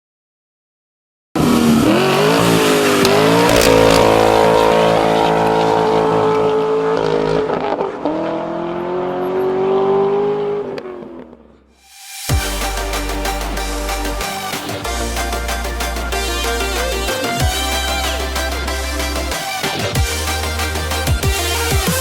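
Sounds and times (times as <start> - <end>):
engine at high revs: 1.4 - 11.4.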